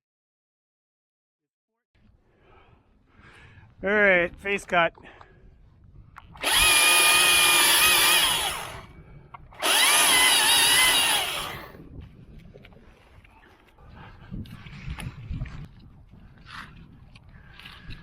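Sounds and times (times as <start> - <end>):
battery chainsaw cutting: 6.4 - 8.9, 9.6 - 11.8.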